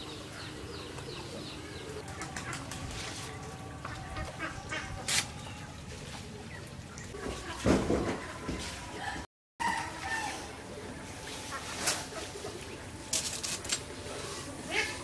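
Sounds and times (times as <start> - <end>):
birds calling: 0.0 - 7.2.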